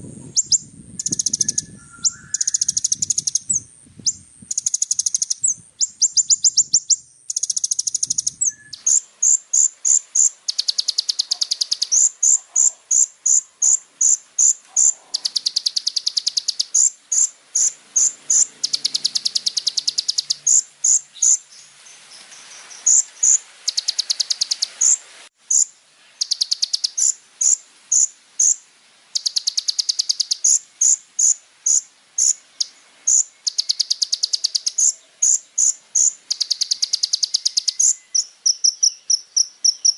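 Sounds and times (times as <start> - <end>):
sunbird buzzing trills: 0.0 - 22.0
sunbird sharp chirps: 0.3 - 28.6, 29.2 - 39.9.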